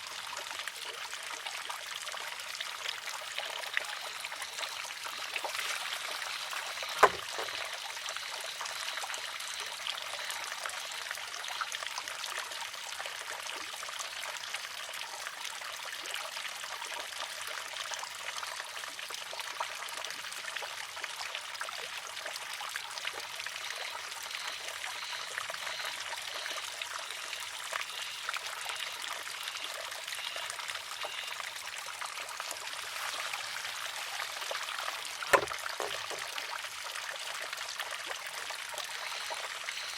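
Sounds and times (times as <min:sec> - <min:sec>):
water trickling: 0:00.0 - 0:39.9
wooden arm clacking on stone: 0:06.6 - 0:07.7, 0:35.3 - 0:36.3.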